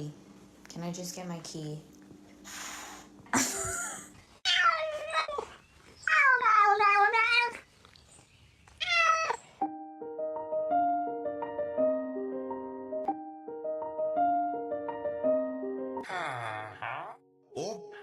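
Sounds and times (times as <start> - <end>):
cat yowling: 4.4 - 7.6, 8.8 - 9.5
piano music: 9.6 - 16.1.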